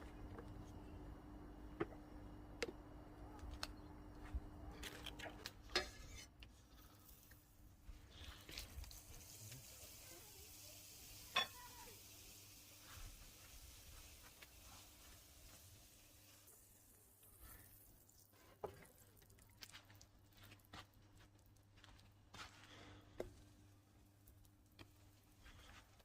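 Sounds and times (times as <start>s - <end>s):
meat sizzling in a pan: 8.4s - 18.2s.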